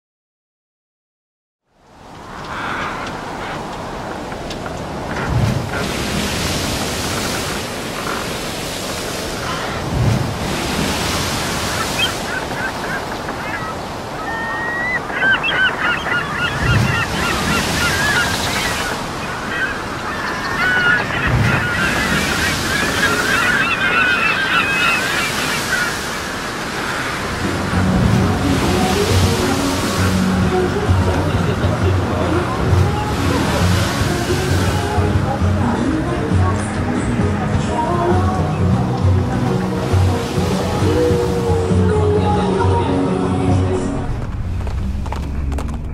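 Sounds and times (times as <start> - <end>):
surf breaking on beach: 2.0 - 42.6
gulls calling: 2.1 - 44.2
music: 27.5 - 45.9.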